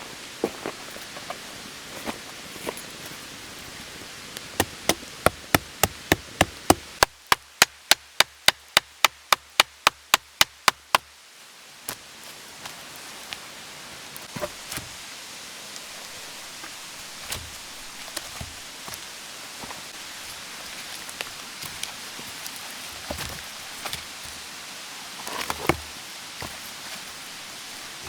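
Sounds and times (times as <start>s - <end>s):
hammering knocks: 4.6s - 7.1s.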